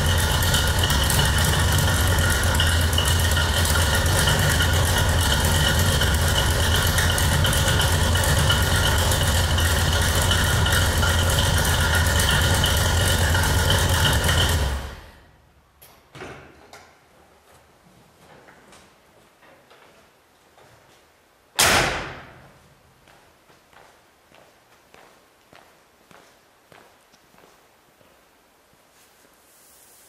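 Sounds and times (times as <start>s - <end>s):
pickup engine idling: 0.0s - 15.2s.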